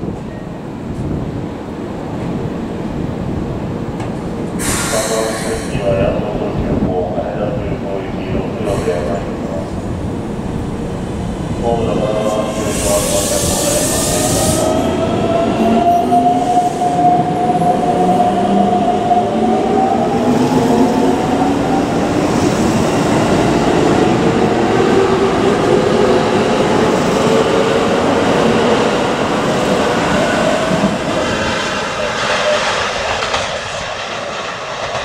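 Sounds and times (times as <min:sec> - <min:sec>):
brief hiss: 0:04.6 - 0:05.8.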